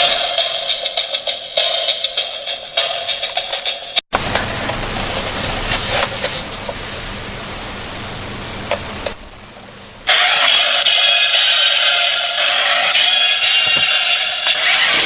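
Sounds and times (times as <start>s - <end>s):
toy car engine sound effect: 14.5s - 15.0s.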